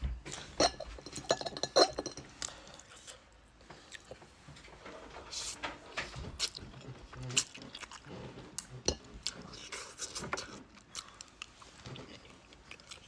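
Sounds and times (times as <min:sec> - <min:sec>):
wet chewing and slurping: 0:06.3 - 0:13.0.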